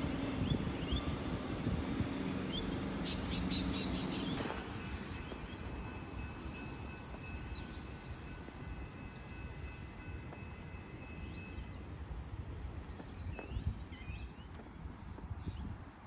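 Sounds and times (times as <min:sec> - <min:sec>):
electric train hum: 0:00.0 - 0:15.4
bird chirping: 0:02.2 - 0:04.4.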